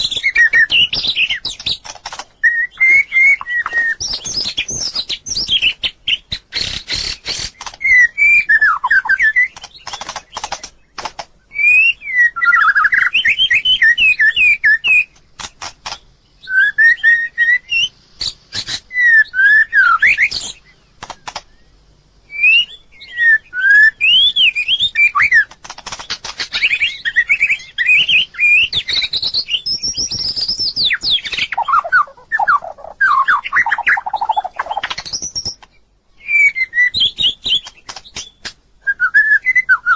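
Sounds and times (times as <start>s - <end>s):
bird singing fluting whistles: 0.0s - 1.8s, 2.4s - 10.0s, 11.5s - 15.2s, 16.4s - 20.7s, 21.5s - 25.5s, 26.5s - 35.6s, 36.2s - 39.9s
rapid clicking bird notes: 0.0s - 8.0s, 9.2s - 11.4s, 15.1s - 16.2s, 20.3s - 21.6s, 25.2s - 27.0s, 37.2s - 38.6s.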